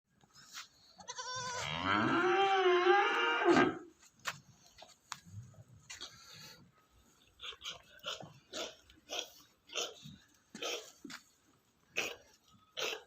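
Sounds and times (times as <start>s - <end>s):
goat bleating: 1.0s - 1.8s.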